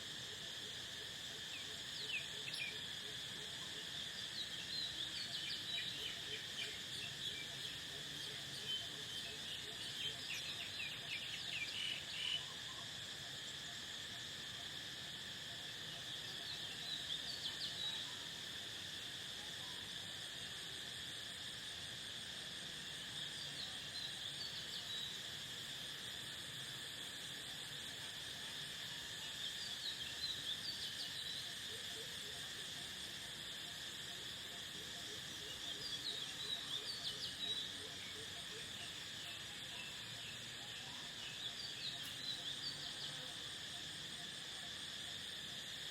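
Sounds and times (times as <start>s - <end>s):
crickets chirping: 0.0s - 45.9s.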